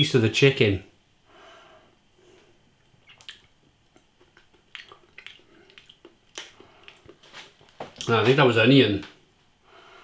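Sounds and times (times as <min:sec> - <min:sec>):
wet chewing mouth sounds: 0:02.8 - 0:08.1.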